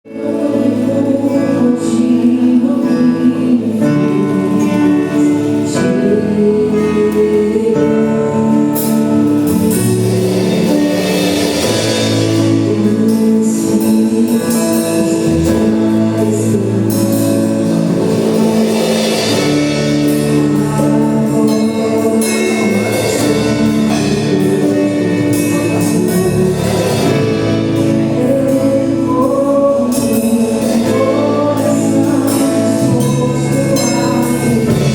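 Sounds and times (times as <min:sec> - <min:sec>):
praise band with singing: 0:00.1 - 0:34.9.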